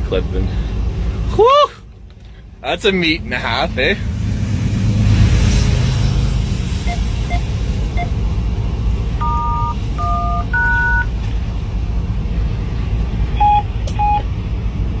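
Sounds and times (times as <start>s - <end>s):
locomotive cab rumble: 0.0s - 15.0s
touch-tone beeps: 9.2s - 11.1s.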